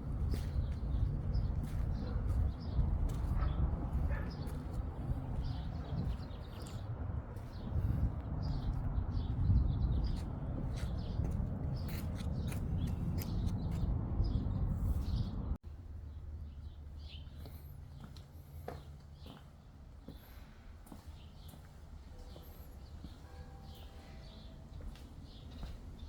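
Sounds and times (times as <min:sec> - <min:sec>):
steady low rumble: 0:00.0 - 0:20.8
birds chirping: 0:00.0 - 0:26.0.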